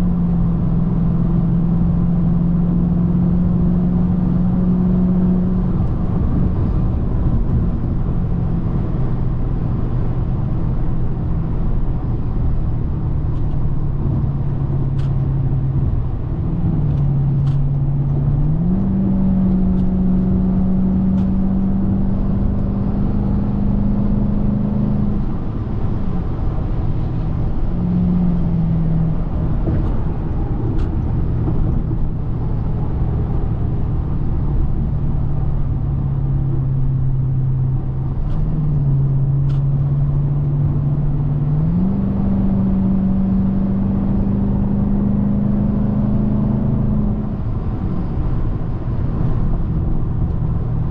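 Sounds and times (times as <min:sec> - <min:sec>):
car engine hum: 0:00.0 - 0:50.9
road rumble: 0:00.0 - 0:50.9.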